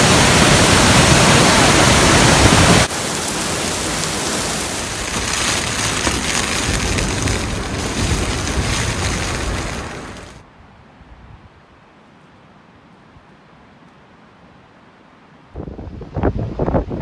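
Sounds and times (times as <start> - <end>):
strong wind rushing: 0.0 - 10.4.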